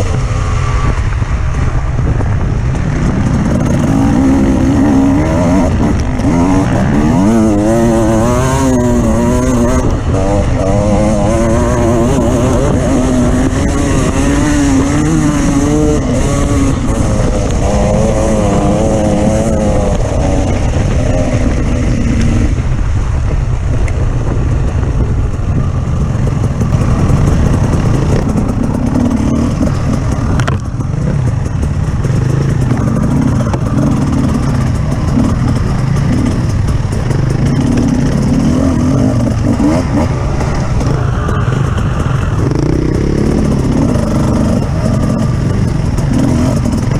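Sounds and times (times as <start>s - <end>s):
off-road motorcycle engine revving: 0.0s - 46.9s.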